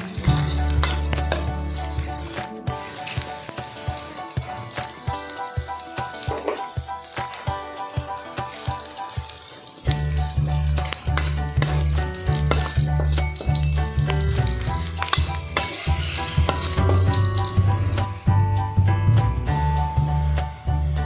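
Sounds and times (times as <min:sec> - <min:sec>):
food sizzling in hot oil: 0:00.0 - 0:18.8
background music with pulsing bass: 0:09.9 - 0:21.0.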